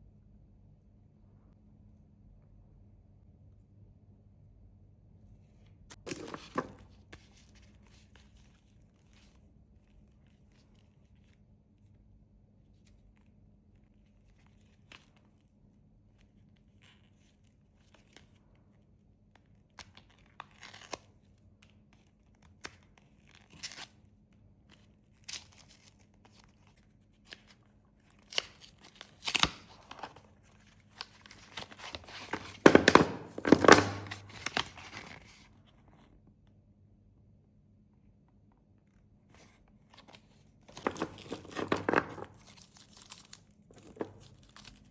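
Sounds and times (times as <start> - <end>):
candy wrappers crinkling: 28.1 - 35.2, 40.7 - 44.9
packaging tearing: 30.9 - 35.2, 40.7 - 44.9.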